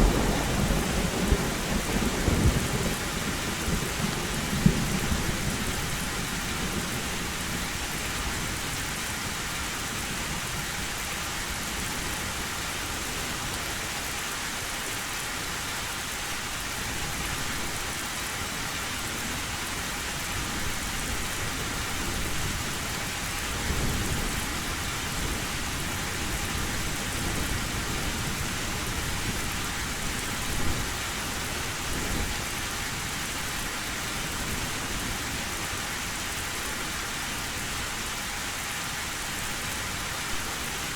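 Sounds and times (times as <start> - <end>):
thunder rumbling: 0.0 - 6.0
heavy rain on a metal roof: 0.0 - 40.9.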